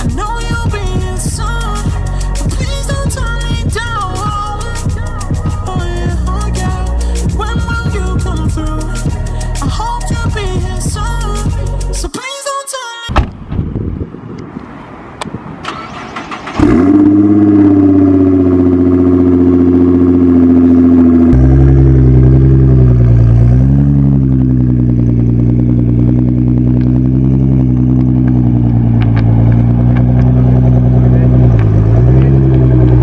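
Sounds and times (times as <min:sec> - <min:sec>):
car engine starting and idling: 0:00.0 - 0:12.0, 0:13.2 - 0:33.0.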